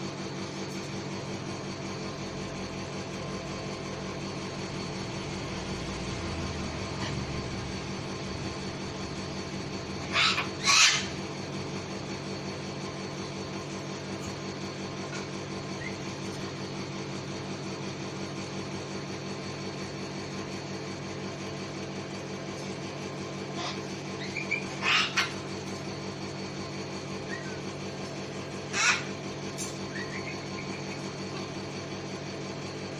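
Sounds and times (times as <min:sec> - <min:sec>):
steady low hum: 0:00.0 - 0:32.9
cockatoo screeching: 0:10.0 - 0:11.2, 0:23.6 - 0:25.4, 0:28.7 - 0:29.1.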